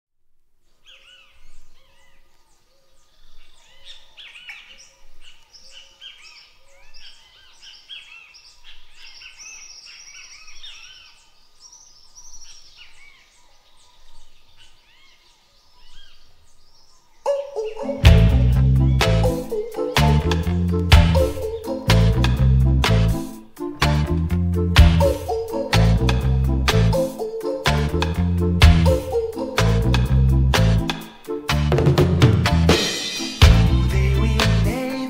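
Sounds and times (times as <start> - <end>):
birds chirping: 0.7 - 35.0
low repeating note: 17.3 - 34.7.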